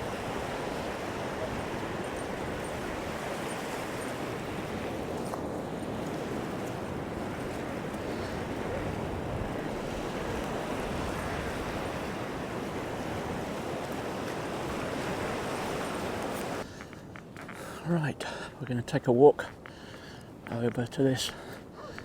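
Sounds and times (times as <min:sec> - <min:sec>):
surf washing onto beach: 0:00.0 - 0:16.6
wind: 0:00.0 - 0:22.0.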